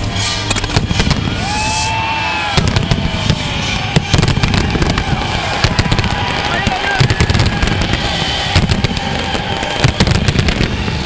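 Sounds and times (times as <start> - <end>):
fireworks bangs and crackles: 0.0 - 11.0
low rumble: 0.0 - 11.0.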